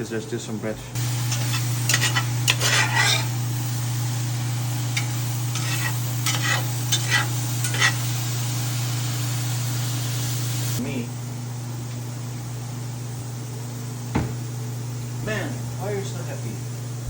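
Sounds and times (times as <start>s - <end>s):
sauce sizzling in a pan: 1.0s - 10.8s
spoon scraping and clinking on pan: 1.2s - 3.4s, 4.9s - 8.2s.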